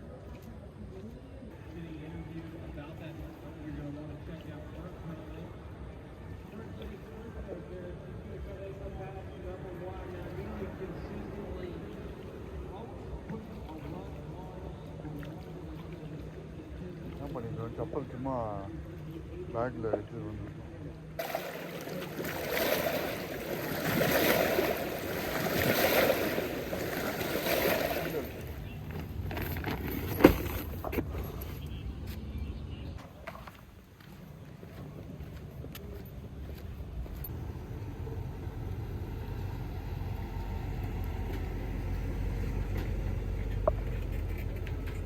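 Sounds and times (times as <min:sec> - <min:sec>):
rushing churning water: 0:21.2 - 0:29.0
engine rumbling: 0:21.2 - 0:33.2, 0:36.2 - 0:45.0.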